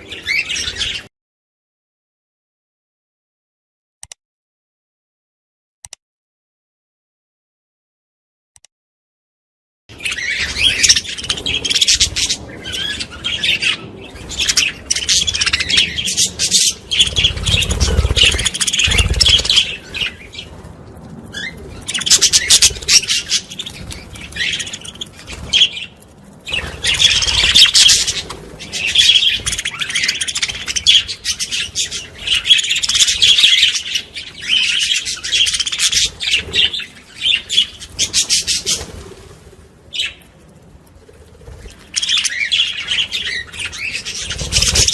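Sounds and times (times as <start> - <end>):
budgerigars chattering and warbling: 10.0 - 20.5, 21.4 - 25.9, 26.5 - 38.9, 41.6 - 44.9.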